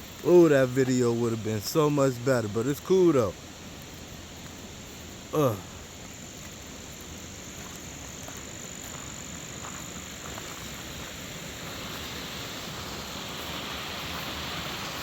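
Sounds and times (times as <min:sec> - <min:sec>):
thin high steady tone: 0:00.0 - 0:04.1
steady hiss: 0:00.0 - 0:15.0.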